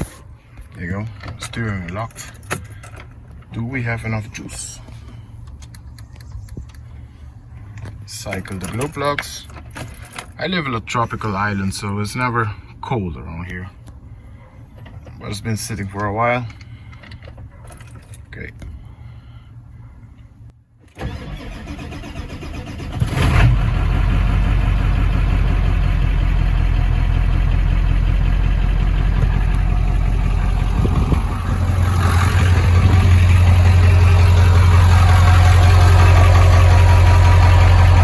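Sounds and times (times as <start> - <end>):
starter cranking engine: 21.0 - 23.9, 28.2 - 38.0
diesel engine idling: 23.6 - 38.0.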